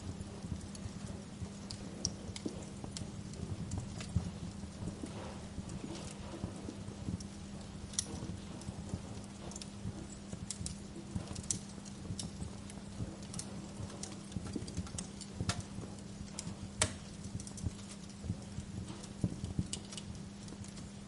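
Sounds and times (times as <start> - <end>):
low rumble and hum: 0.0 - 21.0
wood fire crackling: 0.0 - 21.0.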